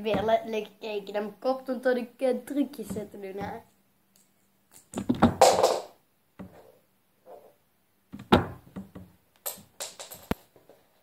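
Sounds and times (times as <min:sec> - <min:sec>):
knocks and thuds: 0:00.1 - 0:00.4, 0:05.0 - 0:06.6, 0:08.1 - 0:09.1
handling noise: 0:08.2 - 0:10.9.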